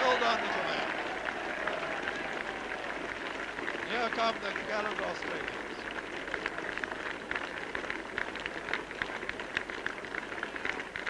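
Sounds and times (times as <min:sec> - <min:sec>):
crowd cheering and clapping: 0:00.0 - 0:11.0.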